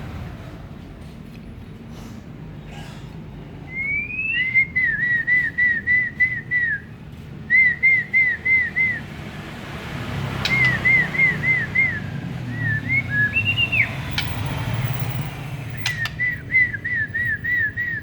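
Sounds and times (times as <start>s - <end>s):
person whistling: 3.8s - 6.9s, 10.5s - 13.9s
sharp click: 10.4s - 10.9s, 15.8s - 16.2s.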